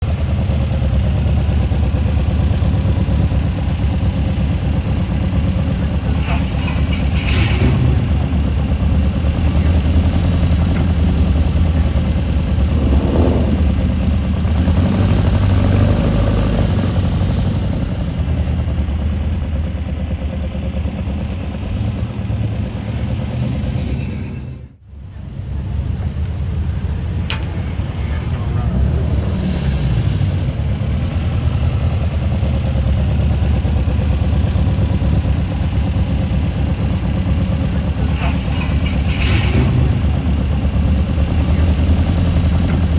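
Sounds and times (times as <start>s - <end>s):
car engine rumbling: 0.0s - 42.9s.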